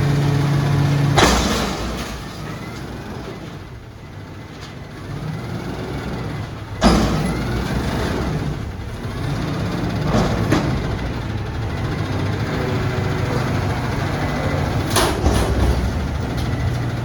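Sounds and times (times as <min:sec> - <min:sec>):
garbage truck diesel engine running: 0:00.0 - 0:17.0
sharp metallic bang: 0:01.2 - 0:02.6.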